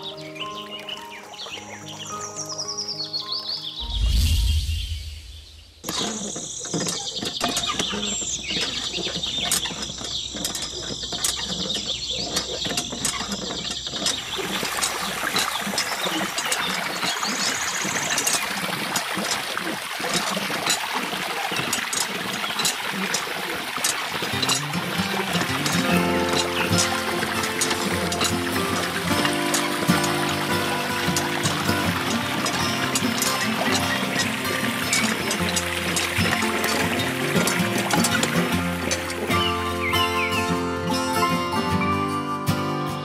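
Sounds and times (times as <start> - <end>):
low whoosh: 3.8 - 5.8
water splashing from toy pump: 5.9 - 40.3
high chirring with light ticks: 23.9 - 41.8.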